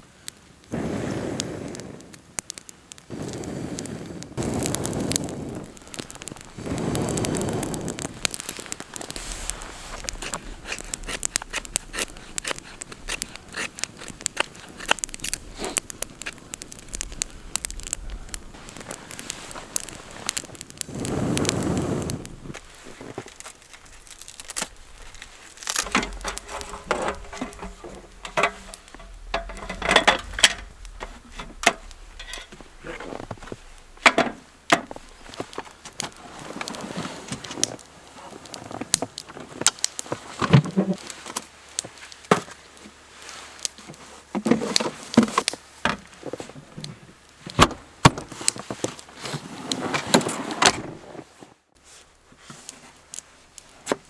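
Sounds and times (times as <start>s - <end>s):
handling clicks and knocks: 22.5s - 36.7s.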